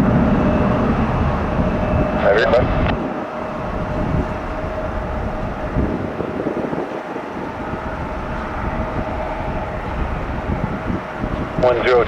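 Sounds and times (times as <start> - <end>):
jet engines rumbling: 0.0 - 12.0
thin steady engine tone: 0.0 - 12.0
wind buffeting microphone: 0.0 - 12.0.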